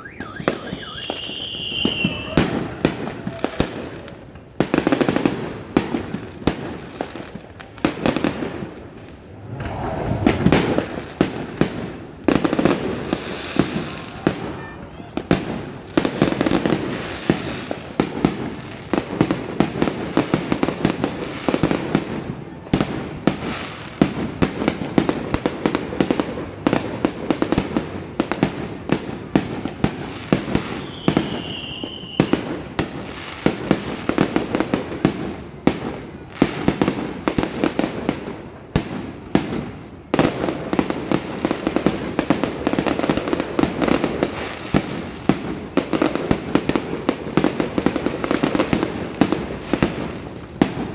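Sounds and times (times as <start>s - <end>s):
high firework whistle: 0.0s - 4.5s, 7.5s - 16.8s, 30.4s - 32.8s
fireworks bangs and crackling: 0.0s - 50.9s.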